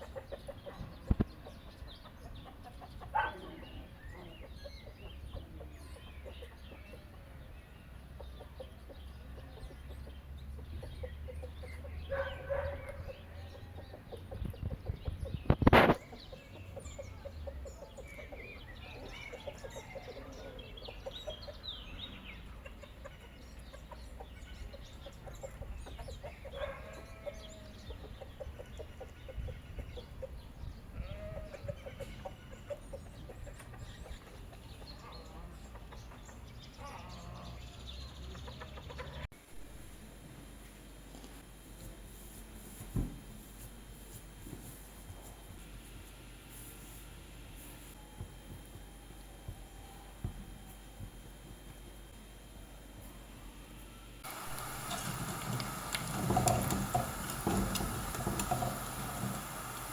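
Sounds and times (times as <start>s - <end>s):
chickens clucking: 0.0s - 39.3s, 54.2s - 59.9s.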